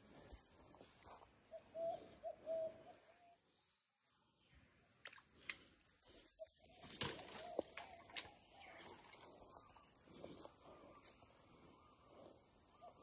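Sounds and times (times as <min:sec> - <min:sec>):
bird calling: 0:01.1 - 0:03.4, 0:05.1 - 0:13.0.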